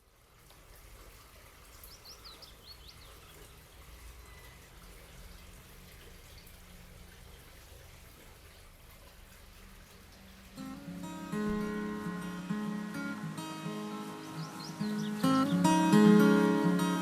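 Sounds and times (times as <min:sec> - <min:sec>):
light hiss: 0:00.0 - 0:17.0
high bird-like chirps: 0:13.0 - 0:16.3.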